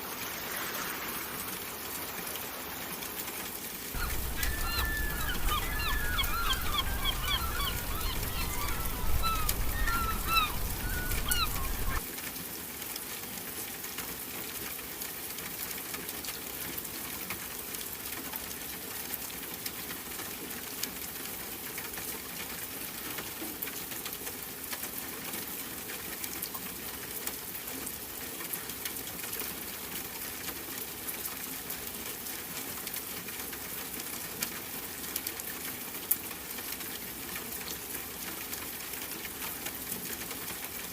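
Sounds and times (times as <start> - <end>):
fine crackling hiss: 0.0 - 12.4
birds squawking: 4.0 - 12.0.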